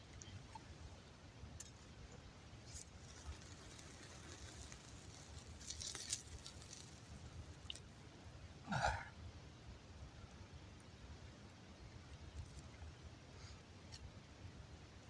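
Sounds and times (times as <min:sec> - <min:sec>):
campfire crackling: 0:01.5 - 0:09.0
person's low throat sound: 0:08.7 - 0:09.1.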